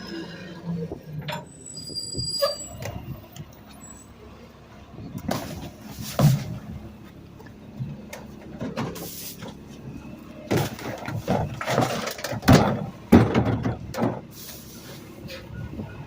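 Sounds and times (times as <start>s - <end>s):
clunks knocks and rattles: 5.1s - 14.4s.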